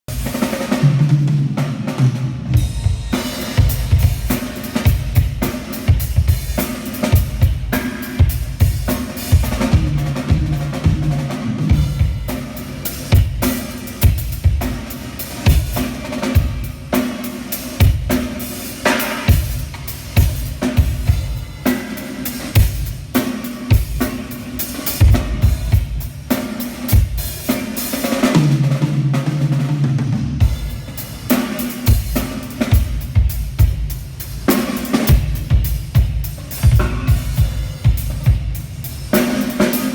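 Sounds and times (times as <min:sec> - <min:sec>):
drum kit playing: 0:00.0 - 0:39.9
low ringing drum tone: 0:02.5 - 0:13.5.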